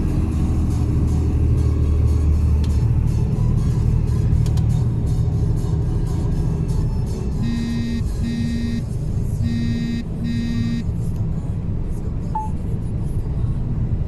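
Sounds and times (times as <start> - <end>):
diesel truck engine rumbling: 0.0 - 14.0
short flat beeps: 7.4 - 8.8, 9.4 - 10.8, 12.4 - 12.6.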